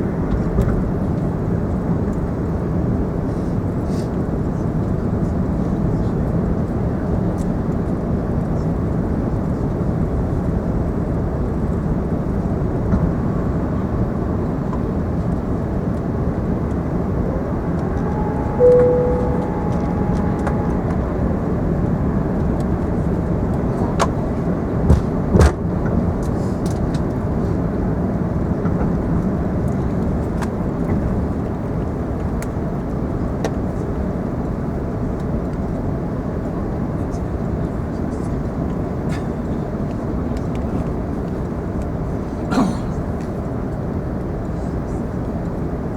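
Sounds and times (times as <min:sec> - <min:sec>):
airliner cabin noise: 0:16.0 - 0:24.3
short cabin tone: 0:17.1 - 0:21.7.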